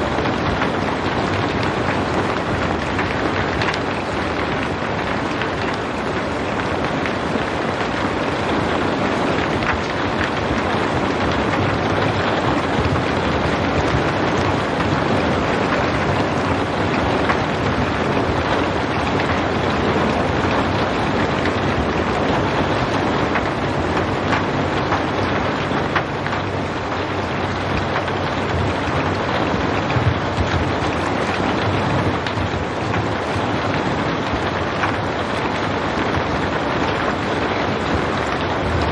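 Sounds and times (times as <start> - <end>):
rain drop ticks: 0.0 - 38.9
steady rain hiss: 0.0 - 38.9.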